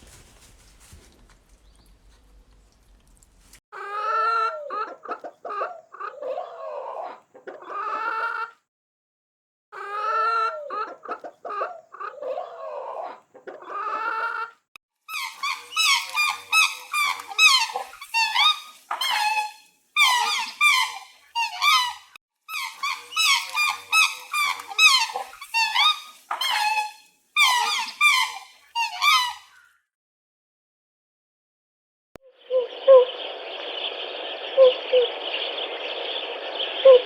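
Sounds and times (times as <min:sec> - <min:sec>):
high-pitched animal squeaks: 0:15.1 - 0:29.6
low animal calls: 0:36.6 - 0:37.0.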